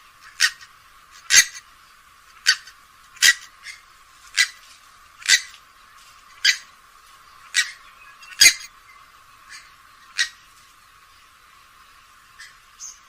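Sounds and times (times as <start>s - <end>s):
swamphen short sharp calls: 2.4s - 4.6s, 5.2s - 5.6s, 6.4s - 6.7s, 7.4s - 8.7s, 9.5s - 10.4s.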